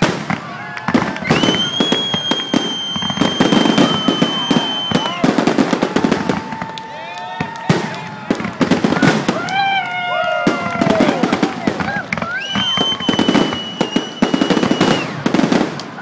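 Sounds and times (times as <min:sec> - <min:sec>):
fireworks bangs and crackles: 0:00.0 - 0:16.0
lower firework whistle: 0:00.8 - 0:08.2, 0:12.1 - 0:15.8
high-pitched firework whistle: 0:01.0 - 0:05.5, 0:12.2 - 0:15.6.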